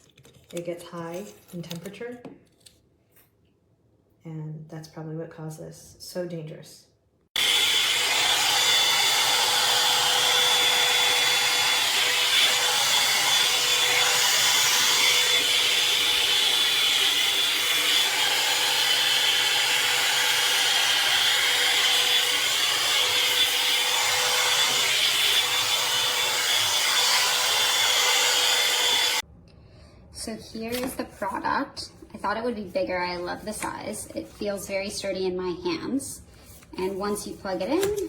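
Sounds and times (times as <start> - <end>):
hair dryer brush fan blowing: 7.4 - 29.2.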